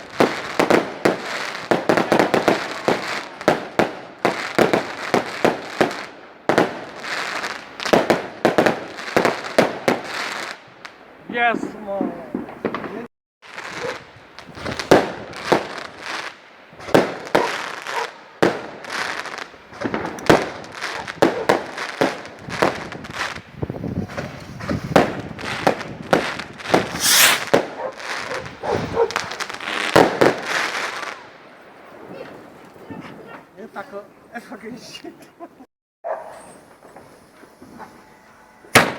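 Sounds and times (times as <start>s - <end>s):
fireworks bangs and crackles: 0.0s - 33.3s
hissing firework burst: 26.7s - 27.6s.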